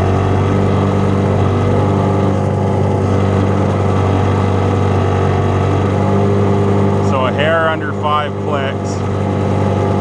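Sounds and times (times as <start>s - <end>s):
outboard motor at full throttle: 0.0s - 10.0s.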